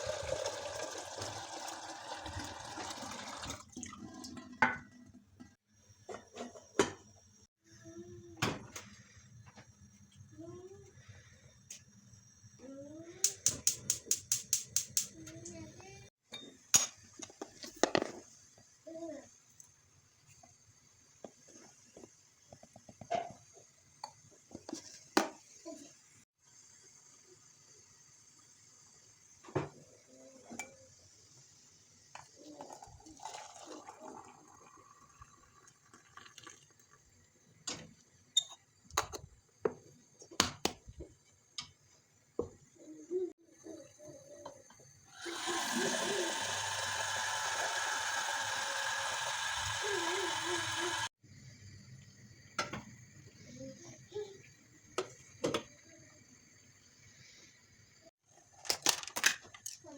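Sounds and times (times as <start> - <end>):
liquid pouring: 0.0 - 4.4, 32.7 - 37.1, 45.2 - 51.1.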